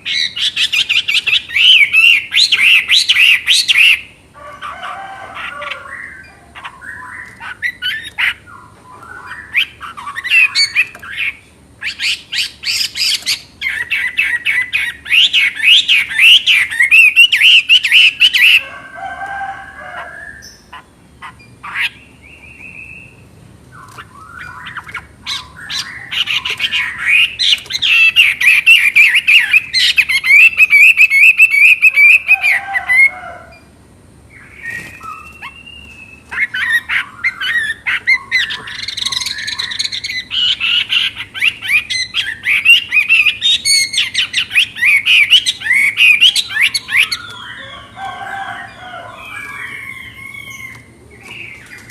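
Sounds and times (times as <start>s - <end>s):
bird warbling song: 0.0s - 33.7s, 34.3s - 51.9s
soft bird calls: 0.0s - 51.9s.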